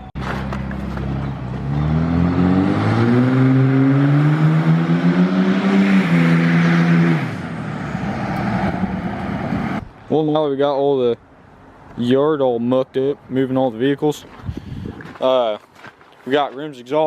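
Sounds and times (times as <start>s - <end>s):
truck exhaust revving: 0.2s - 9.9s.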